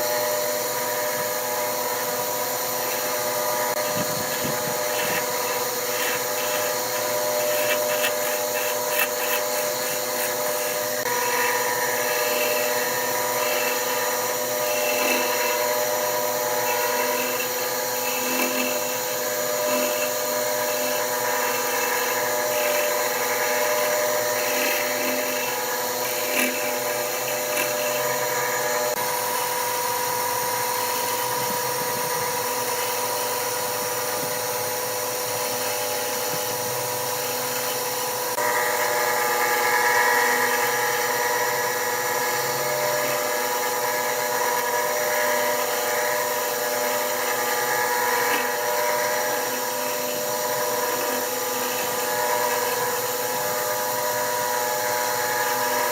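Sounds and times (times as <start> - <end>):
turning tool cutting wood: 0.0 - 55.9
wood lathe motor whine: 0.0 - 55.9.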